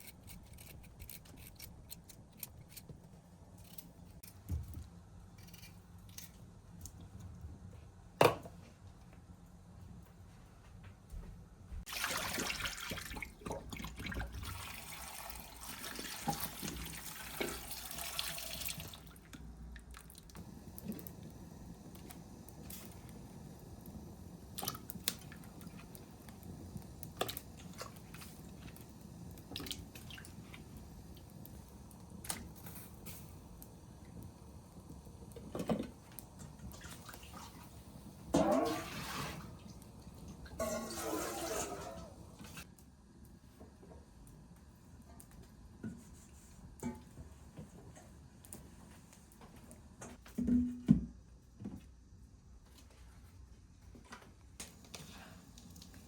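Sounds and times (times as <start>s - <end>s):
water running: 11.9s - 33.3s, 34.0s - 42.6s
water splashing: 38.4s - 39.6s.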